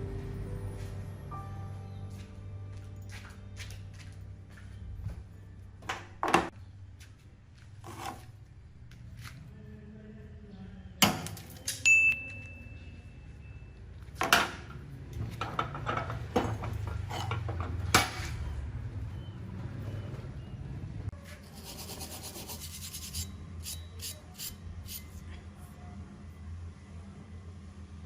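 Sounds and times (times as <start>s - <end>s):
high metallic ringing: 11.8s - 13.6s
metal knocks and clinks: 15.4s - 17.9s.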